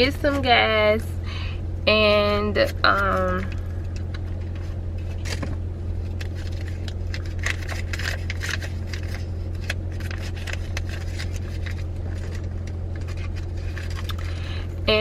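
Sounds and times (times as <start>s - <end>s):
car engine idling: 0.0s - 15.0s
clicks and rustles of handling: 2.6s - 14.4s.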